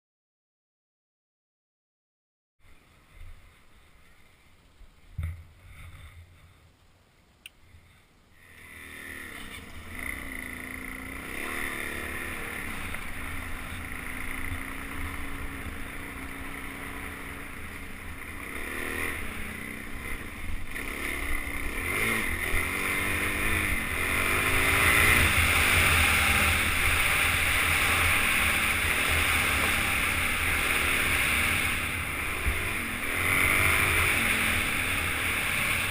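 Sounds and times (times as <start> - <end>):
dirt bike engine revving: 8.4 - 35.9.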